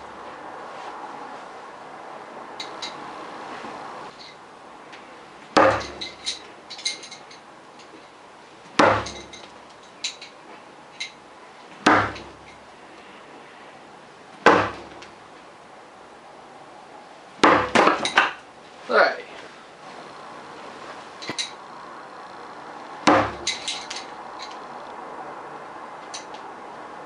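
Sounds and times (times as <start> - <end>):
light metallic clinks: 2.6 - 3.0, 5.7 - 8.0, 9.0 - 11.2, 23.4 - 24.8
spikes thudding into wood: 5.5 - 6.2, 8.7 - 9.4, 11.8 - 12.4, 14.4 - 15.2, 17.4 - 18.4, 23.0 - 24.1.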